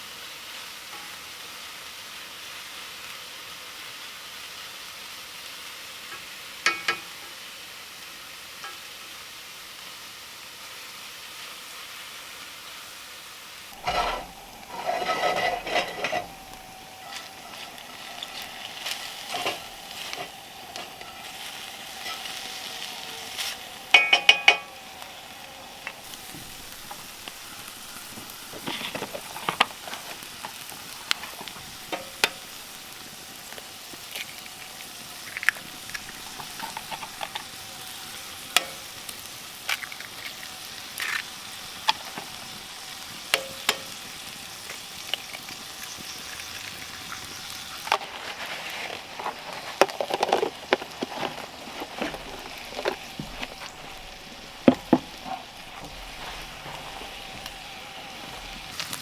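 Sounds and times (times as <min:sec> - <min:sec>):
food sizzling in a pan: 0:00.0 - 0:59.0
cooking utensil clicks and taps: 0:06.1 - 0:07.3, 0:13.8 - 0:25.1, 0:25.8 - 0:48.1, 0:49.8 - 0:57.6.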